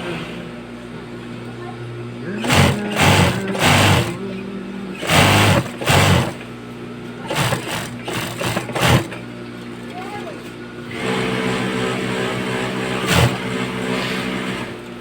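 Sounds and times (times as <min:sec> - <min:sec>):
sewing machine stitching in bursts: 0:02.4 - 0:04.3, 0:05.0 - 0:06.5, 0:07.3 - 0:09.2, 0:10.9 - 0:14.8.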